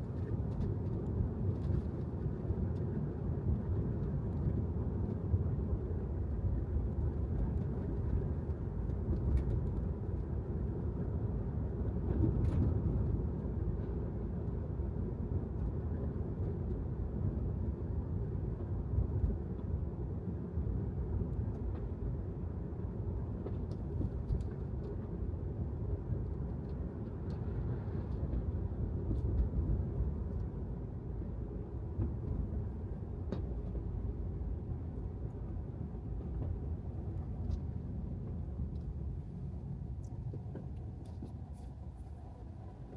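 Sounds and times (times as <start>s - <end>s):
car road rumble: 0.0s - 42.9s.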